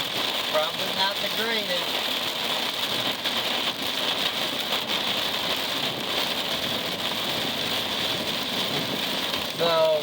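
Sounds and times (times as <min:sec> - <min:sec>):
rain pattering on vehicle: 0:00.0 - 0:10.0
road noise: 0:00.0 - 0:10.0.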